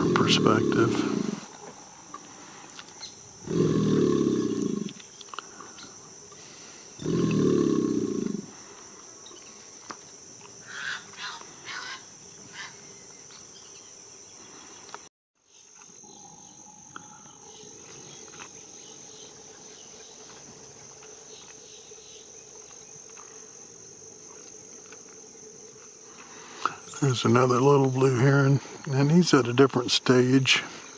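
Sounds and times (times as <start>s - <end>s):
alligator bellowing: 0.0s - 1.6s, 3.4s - 5.0s, 7.0s - 8.7s
insect drone: 0.0s - 30.9s.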